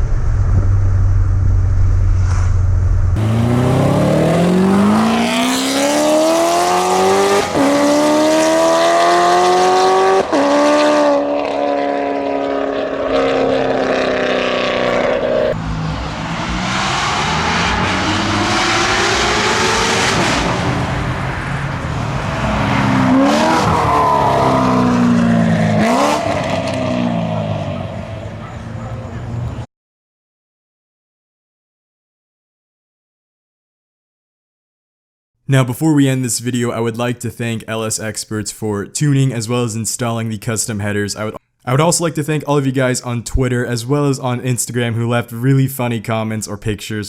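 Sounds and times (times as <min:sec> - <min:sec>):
car engine accelerating hard: 0:03.2 - 0:29.6.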